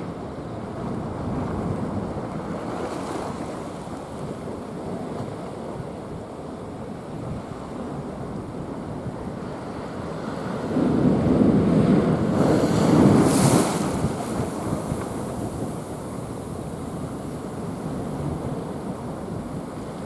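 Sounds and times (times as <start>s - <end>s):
wind buffeting microphone: 0.0s - 20.0s
waves surging against seawall: 0.1s - 20.0s
wave breaking: 11.7s - 17.4s
spray hiss: 12.3s - 14.6s.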